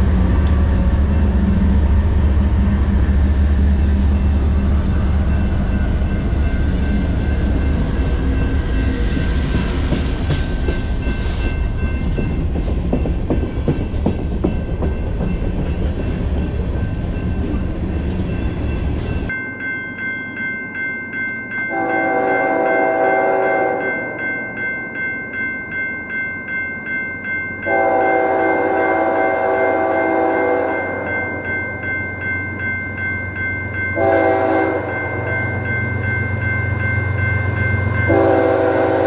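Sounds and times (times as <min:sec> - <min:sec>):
train wheel clatter: 0:00.0 - 0:19.3
freight train rumbling past: 0:00.0 - 0:19.7, 0:20.3 - 0:39.0
crossing bells ringing: 0:00.6 - 0:39.0
locomotive horn chord: 0:21.7 - 0:23.9, 0:27.7 - 0:30.8, 0:34.0 - 0:35.0, 0:38.1 - 0:39.0.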